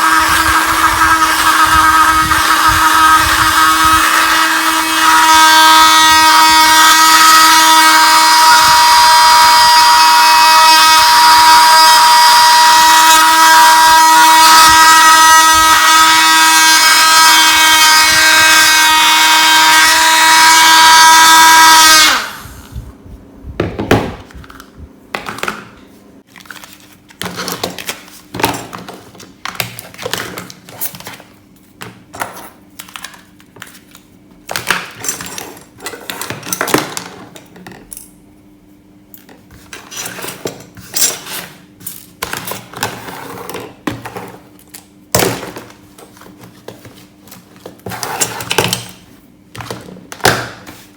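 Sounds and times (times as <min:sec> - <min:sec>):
small motor high whine: 0:00.0 - 0:22.9.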